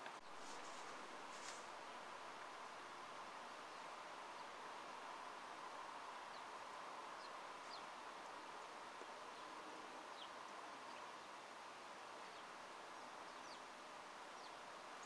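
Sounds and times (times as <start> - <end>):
small birds chirping faintly: 0.0 - 15.0
steady background hiss: 0.0 - 15.0.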